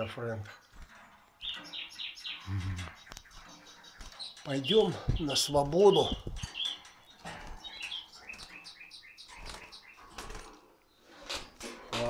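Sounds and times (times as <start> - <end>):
small bird chirping: 0.0 - 11.6
wings fluttering in wire cage: 3.3 - 8.7, 9.3 - 12.0.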